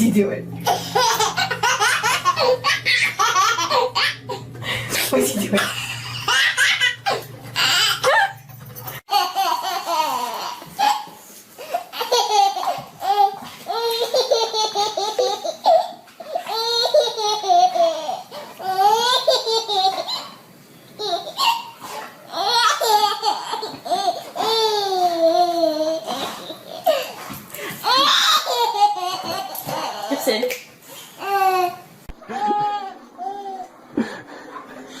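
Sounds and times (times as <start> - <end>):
small child laughing: 0.6 - 4.4, 5.6 - 8.4, 9.1 - 20.4, 27.8 - 30.3, 31.2 - 34.2.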